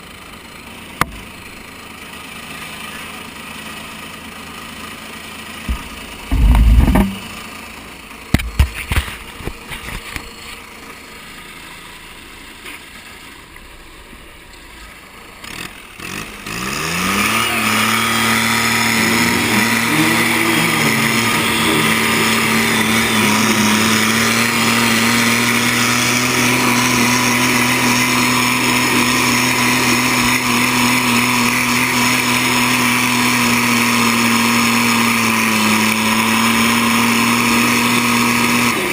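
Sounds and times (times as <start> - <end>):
diesel tractor engine revving: 0.0 - 38.9
engine knocks: 1.0 - 1.4, 5.6 - 7.5, 8.2 - 10.3.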